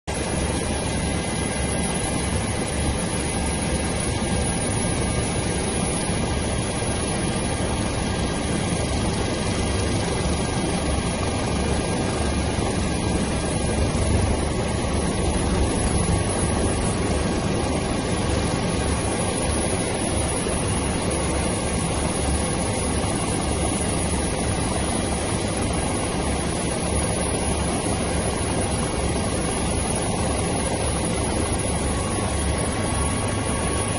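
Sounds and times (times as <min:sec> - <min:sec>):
helicopter rotor and engine: 0:00.0 - 0:33.9.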